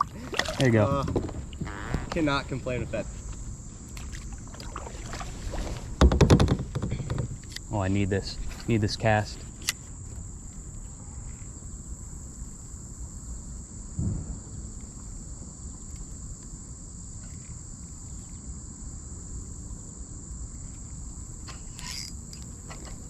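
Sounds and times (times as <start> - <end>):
low outdoor rumble: 0.0 - 6.0, 6.6 - 17.8
crickets chirping: 0.0 - 23.0
dull thump: 0.3 - 2.6, 4.0 - 7.4, 14.0 - 14.9.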